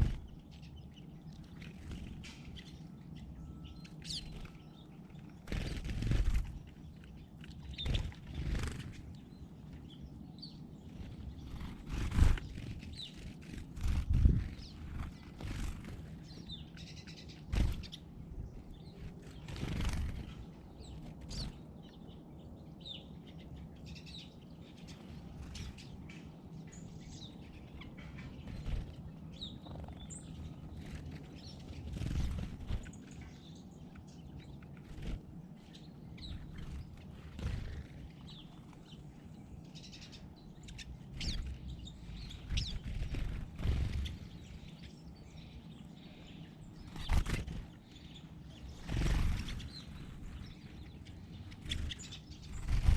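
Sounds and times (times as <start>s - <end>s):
low background rumble: 0.0s - 52.9s
small birds chirping: 0.0s - 52.9s
wing flutters or knocks: 46.9s - 47.8s, 51.6s - 52.9s.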